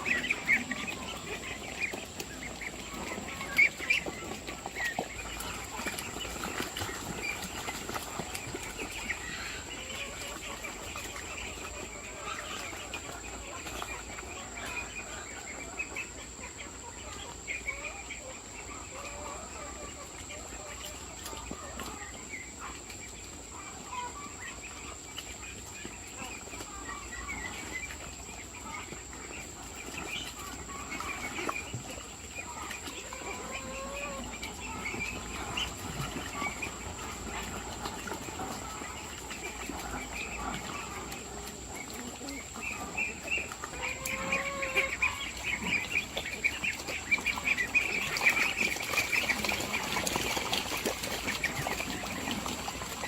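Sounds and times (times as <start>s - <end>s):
lower poultry calls: 0.0s - 53.0s
poultry peeping: 0.0s - 53.0s.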